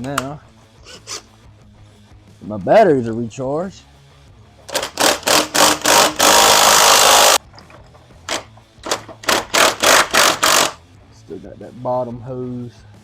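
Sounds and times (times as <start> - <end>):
power tool bursts: 4.7 - 7.4, 8.3 - 10.8.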